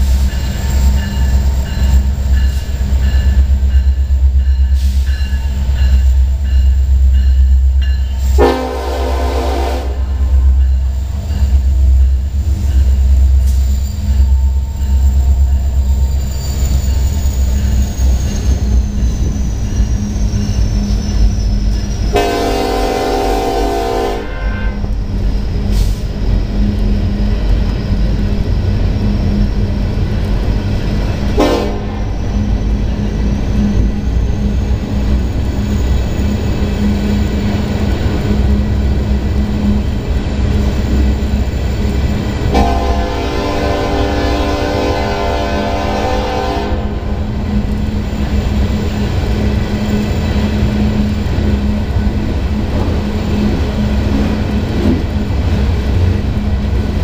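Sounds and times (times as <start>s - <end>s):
train wheels rumbling on rails: 0.0s - 57.0s
train horn: 8.2s - 10.4s, 22.1s - 24.9s, 31.4s - 32.1s, 42.5s - 47.3s.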